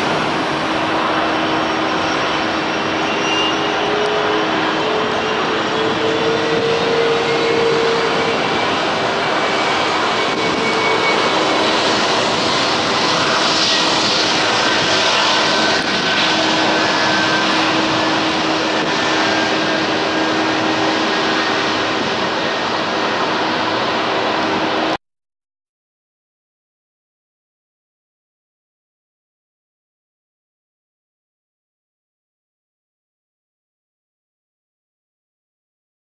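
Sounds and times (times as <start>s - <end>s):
whining tones: 0.0s - 23.6s
jet engine roar: 0.0s - 25.0s.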